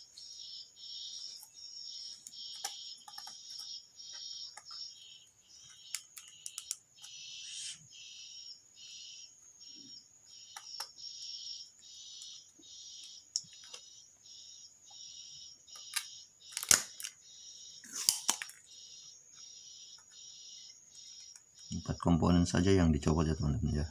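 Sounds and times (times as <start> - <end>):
small sharp clicks: 5.7 - 7.2, 15.7 - 17.2
high-pitched animal chirping: 5.8 - 9.3.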